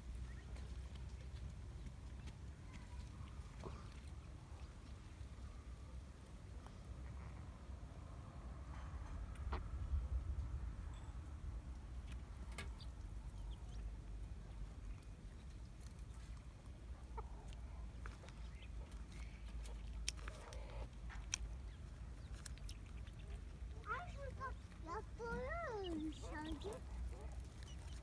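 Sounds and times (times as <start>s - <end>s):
low steady rumble: 0.0s - 28.0s
poultry clucking: 15.8s - 28.0s.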